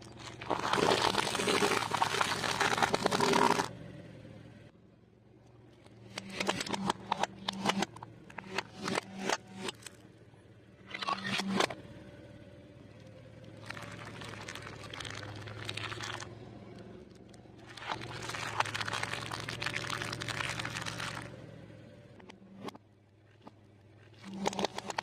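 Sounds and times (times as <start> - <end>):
food crunching under car tyres: 0.0 - 3.7, 13.4 - 21.3.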